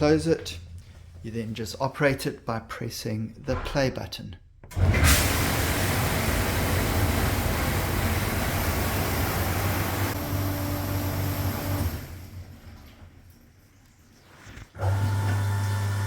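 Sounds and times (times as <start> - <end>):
dishwasher pump humming: 4.7 - 13.8, 14.8 - 16.0
water spraying: 4.9 - 15.8.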